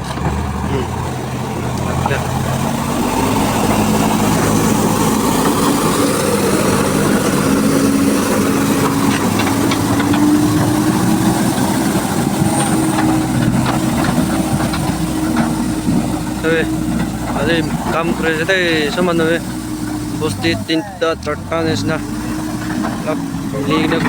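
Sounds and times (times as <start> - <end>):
knocks and clatter: 0.0 - 20.4
engine running: 0.0 - 24.0.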